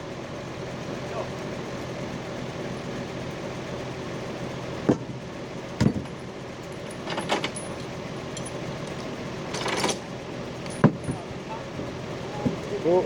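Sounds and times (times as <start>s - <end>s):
truck engine running: 0.0s - 13.0s
metallic rattling: 5.9s - 11.3s.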